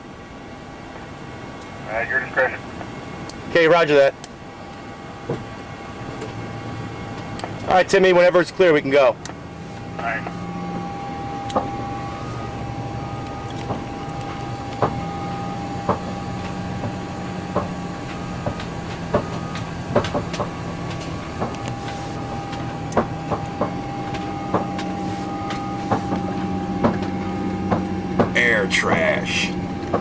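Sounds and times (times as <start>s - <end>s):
high whine: 0.0s - 30.0s
low hum: 0.0s - 30.0s
sharp clicks and knocks: 15.9s - 21.8s, 22.5s - 24.9s, 25.5s - 29.0s.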